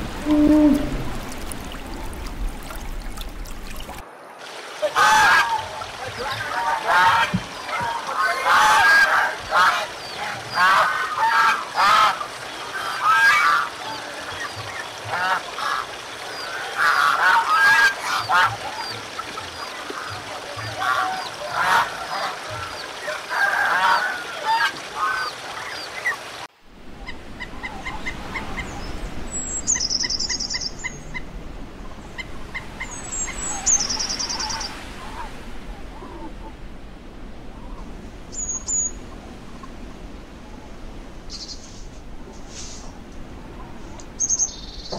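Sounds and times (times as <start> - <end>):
waterfowl honking: 0.0 - 2.1, 4.8 - 26.3.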